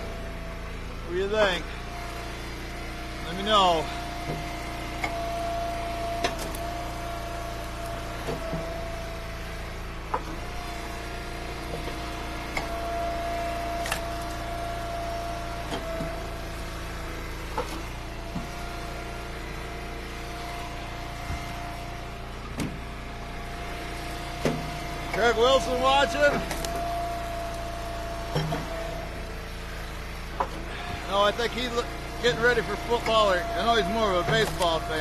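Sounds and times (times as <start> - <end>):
wood splitter engine running: 0.0 - 35.0
firewood knocking and cracking: 26.1 - 27.7.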